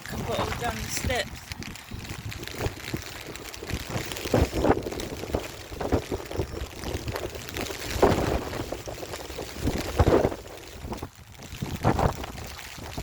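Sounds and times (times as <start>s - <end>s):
gusty wind on microphone: 0.0s - 13.0s.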